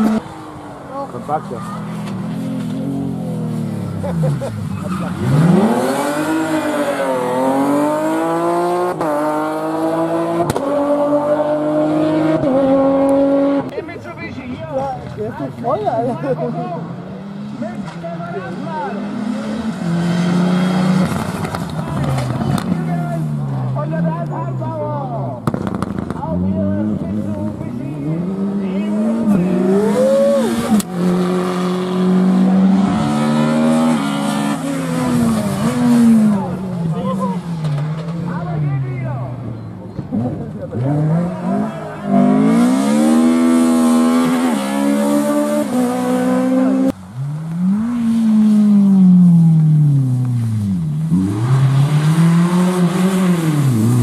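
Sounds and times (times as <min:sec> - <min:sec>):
car engine revving: 0:00.0 - 0:13.8, 0:16.2 - 0:54.0
sharp crack: 0:21.0 - 0:22.8, 0:25.4 - 0:26.4.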